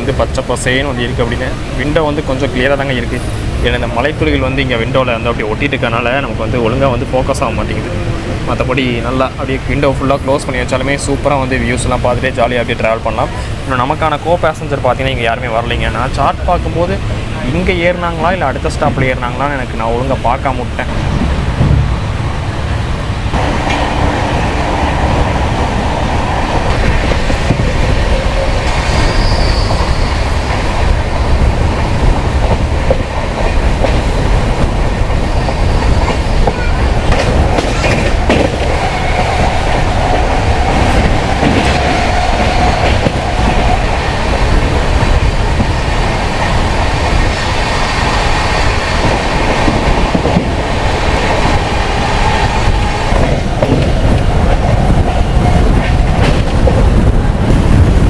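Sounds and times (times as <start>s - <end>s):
clickety-clack of rail joints: 0.0s - 58.0s
train wheels rumbling on rail: 0.0s - 58.0s
faint wheel squeal: 28.5s - 30.3s.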